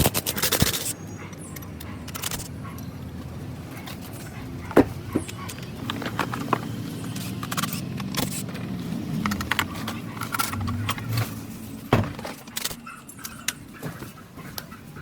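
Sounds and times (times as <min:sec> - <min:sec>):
small metal parts clinking: 0:01.6 - 0:02.5, 0:05.2 - 0:13.6
low hum: 0:10.3 - 0:12.3.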